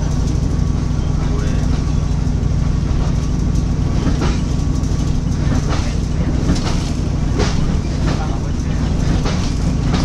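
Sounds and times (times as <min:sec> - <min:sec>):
train carriage rumble: 0:00.0 - 0:10.0.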